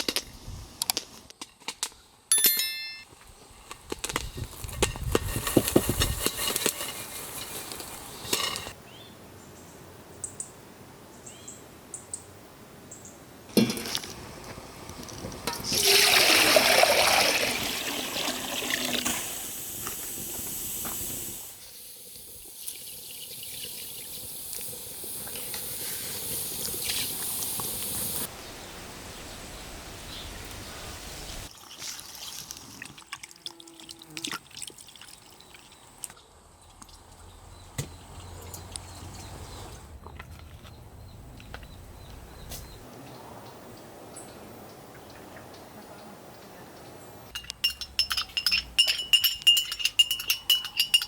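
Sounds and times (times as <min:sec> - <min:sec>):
water pouring and splashing: 0:15.1 - 0:28.3, 0:31.3 - 0:36.1.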